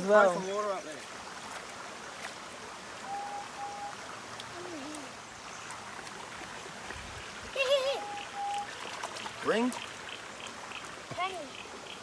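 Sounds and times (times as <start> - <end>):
stream and waterfall rushing: 0.0 - 12.0
short beeps: 3.1 - 4.0, 8.0 - 8.7.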